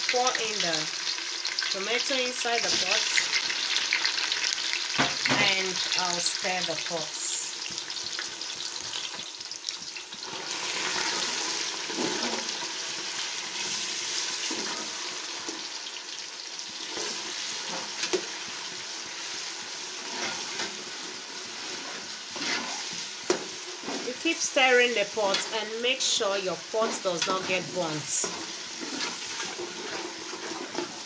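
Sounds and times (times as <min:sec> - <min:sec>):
onions sizzling in hot oil: 0:00.0 - 0:31.0
metal spoon scraping a pot: 0:20.0 - 0:20.7, 0:21.6 - 0:24.2, 0:26.8 - 0:31.0.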